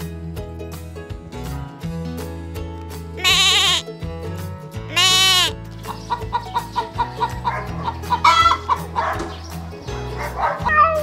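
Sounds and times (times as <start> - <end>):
background music: 0.0 - 11.0
goat bleating: 3.2 - 3.9, 4.9 - 5.6
chickens clucking: 5.8 - 10.6.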